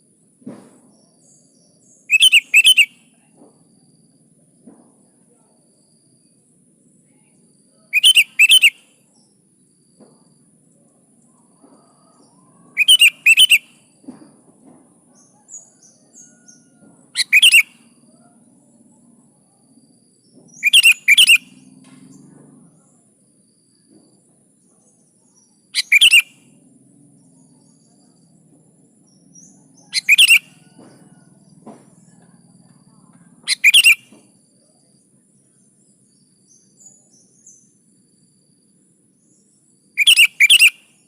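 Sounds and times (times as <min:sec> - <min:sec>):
bulbul calling: 0:01.8 - 0:03.0, 0:07.9 - 0:08.8, 0:12.2 - 0:13.8, 0:17.2 - 0:17.9, 0:20.5 - 0:21.6, 0:25.8 - 0:26.4, 0:29.1 - 0:31.0, 0:33.0 - 0:34.3, 0:40.0 - 0:40.9
faint low hum: 0:17.8 - 0:25.8, 0:26.4 - 0:40.0.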